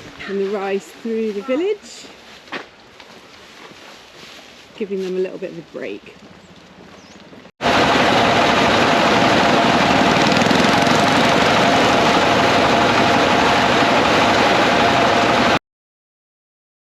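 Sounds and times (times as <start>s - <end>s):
small engine running: 7.6s - 15.6s.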